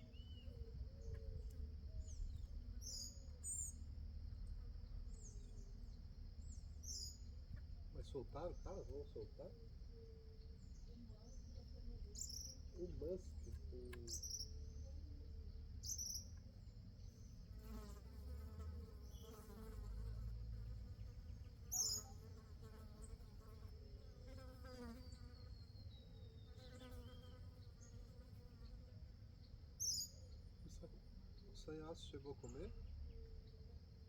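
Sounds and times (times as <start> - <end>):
sharp bird chirps: 15.8 - 16.4, 21.7 - 22.1, 29.8 - 30.4.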